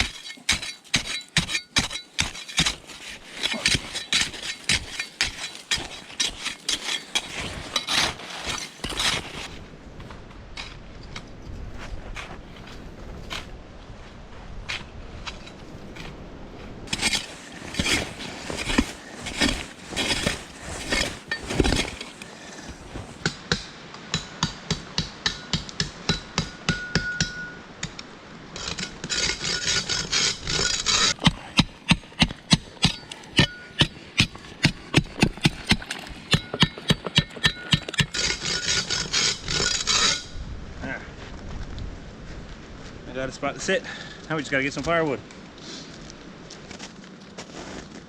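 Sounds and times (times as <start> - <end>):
shovel chopping icy snow: 0.0 - 9.6, 16.9 - 23.3, 28.6 - 40.2.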